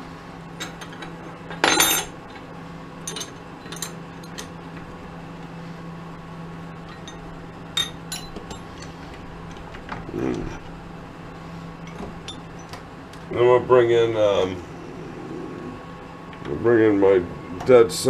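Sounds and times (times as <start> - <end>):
steady low hum: 0.0 - 18.0
loud ringing metal clink: 0.6 - 2.2, 6.8 - 8.9, 11.8 - 12.8
metal tools clinking: 0.6 - 2.4, 3.0 - 4.6, 6.8 - 9.6, 11.8 - 12.8.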